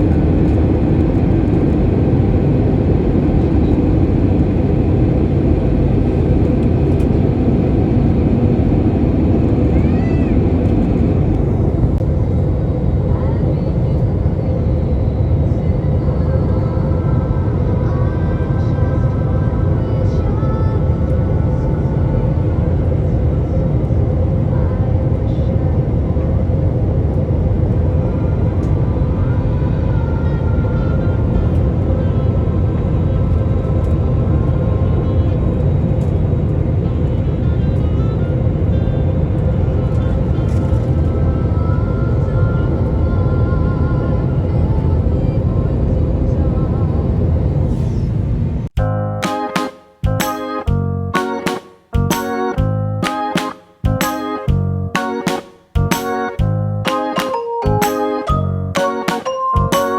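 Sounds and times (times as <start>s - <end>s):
airliner cabin engine noise: 0.0s - 48.8s
short rising and falling tone: 53.0s - 59.9s.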